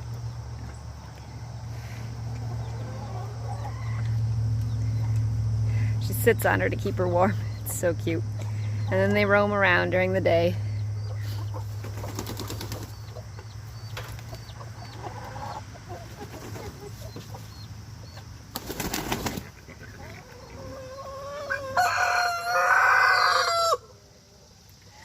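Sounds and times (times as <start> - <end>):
chickens clucking: 0.0 - 23.8
rooster crowing: 2.6 - 4.2, 20.4 - 24.0
wings flapping: 11.7 - 13.0, 16.2 - 16.8, 18.5 - 19.6.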